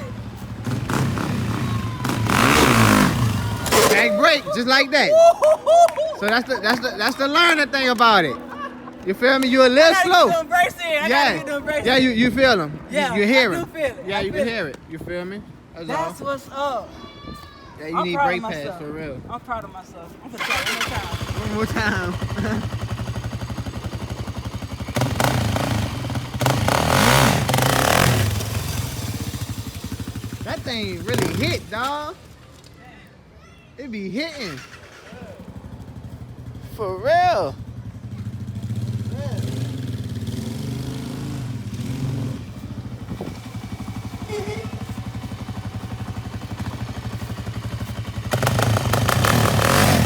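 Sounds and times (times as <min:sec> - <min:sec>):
atv engine revving: 0:00.0 - 0:04.6, 0:20.4 - 0:32.1, 0:34.4 - 0:36.8, 0:37.5 - 0:50.0.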